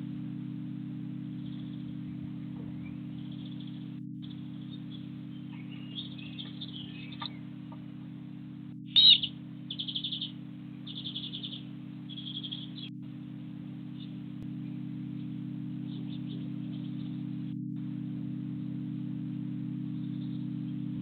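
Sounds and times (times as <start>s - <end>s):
steady low hum: 0.0s - 21.0s
small bird chirping: 1.3s - 8.1s, 8.8s - 13.0s, 13.8s - 17.5s, 19.8s - 21.0s.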